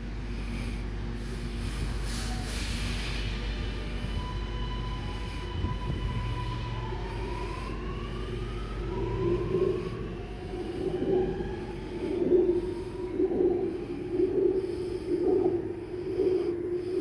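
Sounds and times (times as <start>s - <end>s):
electric train rumble: 0.0s - 17.0s
high whining tones: 3.6s - 17.0s.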